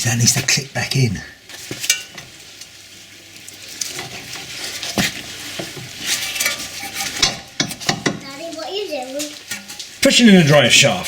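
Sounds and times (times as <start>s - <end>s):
scraping and clattering handling: 3.7s - 8.2s.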